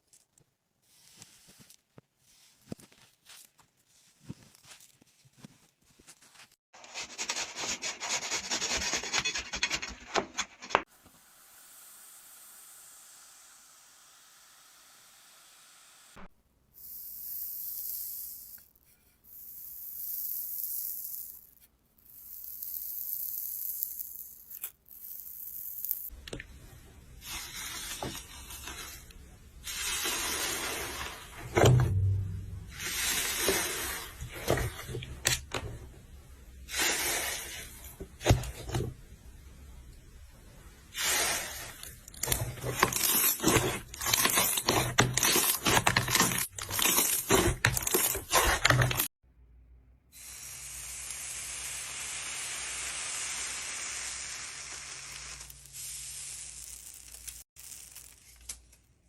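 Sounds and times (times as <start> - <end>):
hisses: 50.2 - 57.4.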